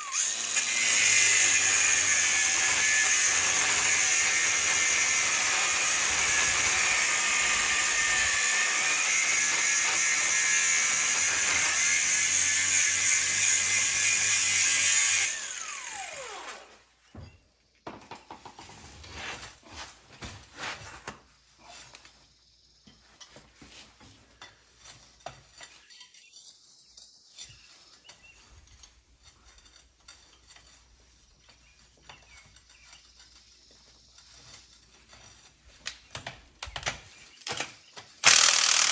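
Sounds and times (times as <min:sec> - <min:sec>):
motor-driven tool running: 0:38.2 - 0:38.9.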